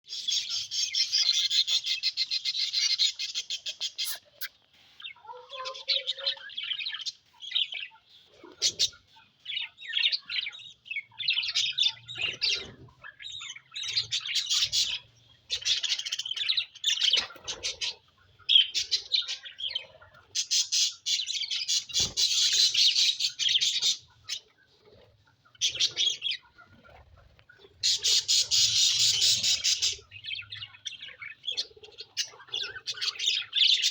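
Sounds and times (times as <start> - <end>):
budgerigars squawking: 0.1 - 4.5, 11.3 - 24.4, 27.8 - 33.9.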